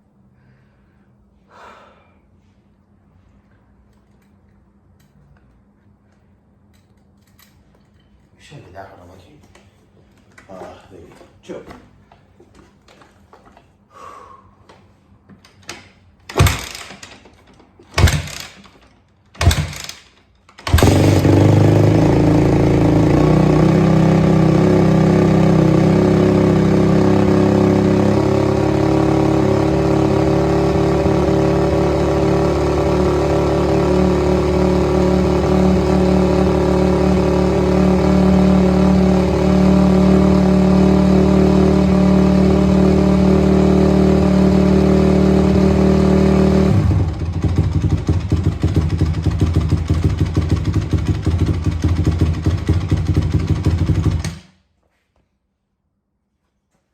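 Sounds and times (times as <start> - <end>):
motorcycle engine kicked over: 15.6 - 54.6
motorcycle engine running: 20.6 - 54.4.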